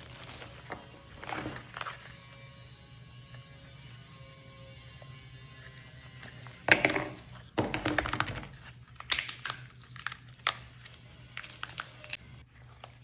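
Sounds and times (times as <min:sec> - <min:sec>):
crackling and clicks from handling: 0:07.8 - 0:12.2.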